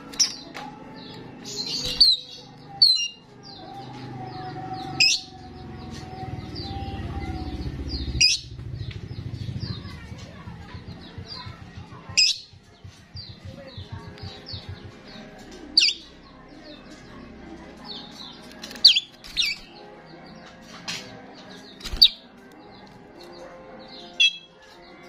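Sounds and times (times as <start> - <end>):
starling chirping: 1.4 - 3.8, 4.8 - 10.0, 17.9 - 19.8.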